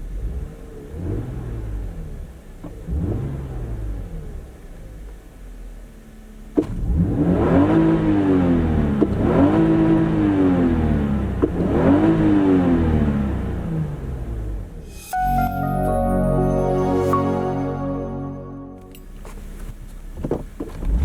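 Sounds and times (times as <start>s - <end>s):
car engine revving through gears: 0.0s - 5.8s, 6.4s - 14.8s, 19.2s - 21.0s.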